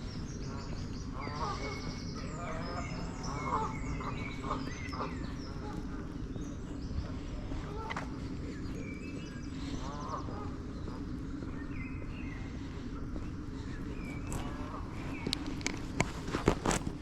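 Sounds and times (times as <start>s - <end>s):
geese honking: 0.0s - 15.9s
small birds chirping: 0.0s - 17.0s.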